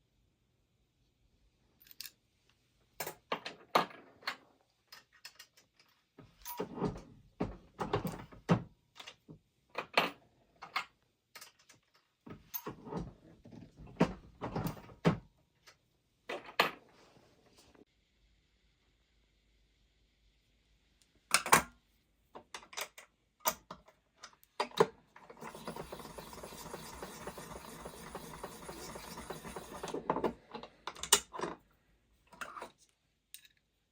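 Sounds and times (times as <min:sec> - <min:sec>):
reloading tools clicking and clattering: 0:24.7 - 0:31.6.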